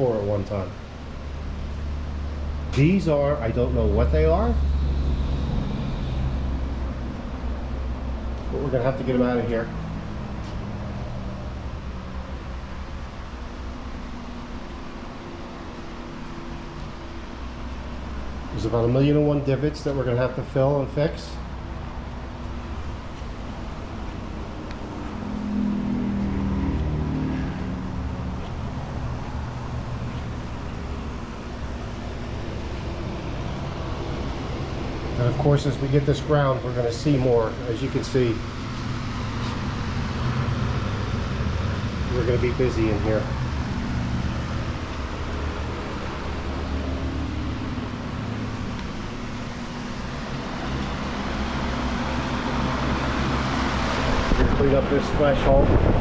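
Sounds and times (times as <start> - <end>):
steady low hum: 0.0 - 56.0
vehicle engine passing by: 1.4 - 19.0, 21.3 - 56.0
machine humming with hiss: 3.6 - 8.5.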